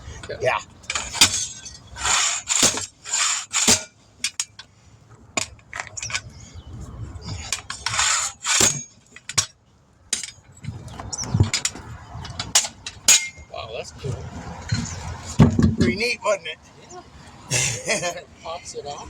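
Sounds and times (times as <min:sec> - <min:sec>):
metal clinks and scrapes: 0:00.0 - 0:04.8, 0:05.4 - 0:06.4, 0:07.2 - 0:13.5, 0:14.5 - 0:16.0.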